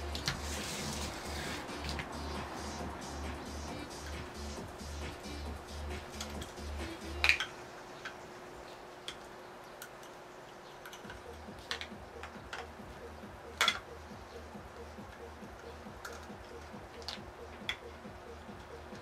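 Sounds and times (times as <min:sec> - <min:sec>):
low pulsing beat: 0:00.0 - 0:07.3, 0:11.1 - 0:19.0.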